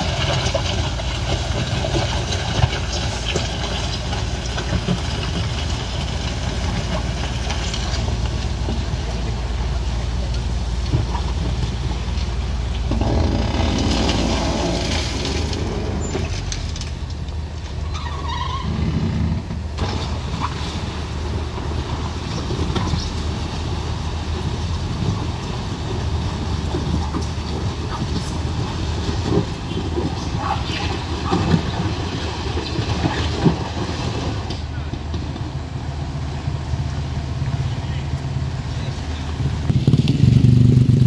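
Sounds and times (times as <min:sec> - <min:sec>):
heavy vehicle engines running: 0:00.0 - 0:41.0
knocks and clatter: 0:10.3 - 0:17.8.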